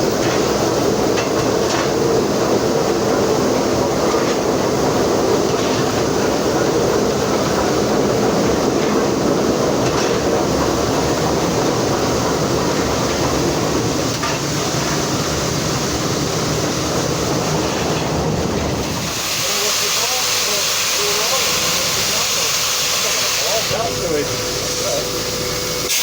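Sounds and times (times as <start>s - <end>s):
train wheels rolling on rails: 0.0s - 26.0s.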